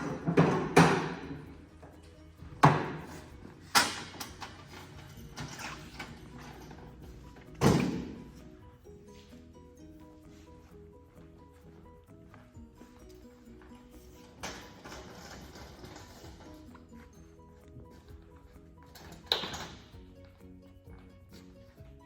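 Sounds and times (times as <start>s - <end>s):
panels thudding and slamming: 0.0s - 1.5s, 7.4s - 8.4s
background music: 0.0s - 22.0s.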